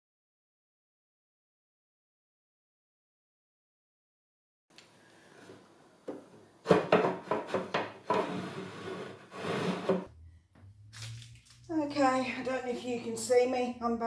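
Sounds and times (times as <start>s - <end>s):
wooden taps and scrapes: 5.4s - 10.1s.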